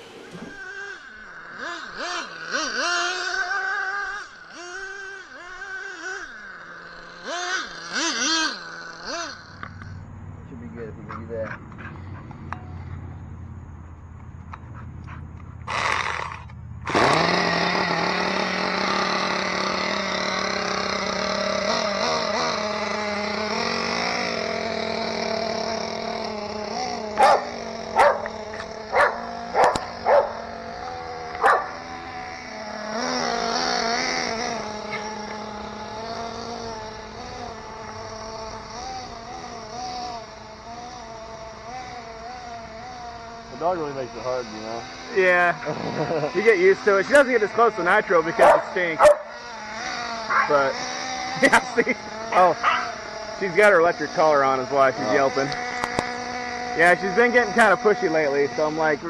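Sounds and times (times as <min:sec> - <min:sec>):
small engine droning: 0:00.0 - 0:59.0
dog yelping: 0:27.2 - 0:28.3, 0:28.9 - 0:30.5, 0:31.4 - 0:31.8, 0:48.4 - 0:49.3, 0:50.3 - 0:50.6, 0:52.6 - 0:53.0.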